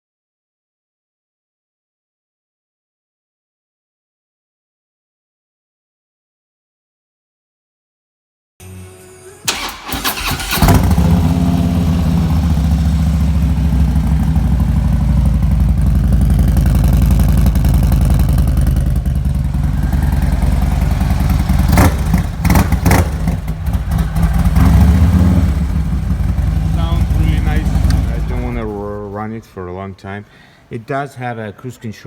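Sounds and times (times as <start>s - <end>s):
motorcycle engine idling: 9.5s - 29.2s
sharp clicks: 27.7s - 28.2s.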